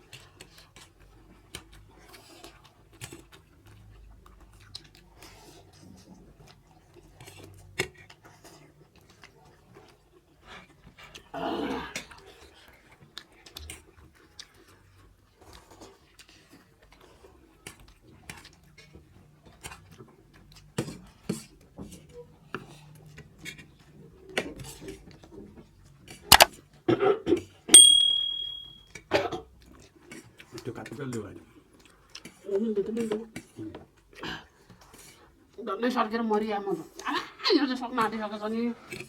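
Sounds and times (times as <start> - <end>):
high ring: 27.8 - 28.8
utensils clicking against plates: 27.8 - 28.8.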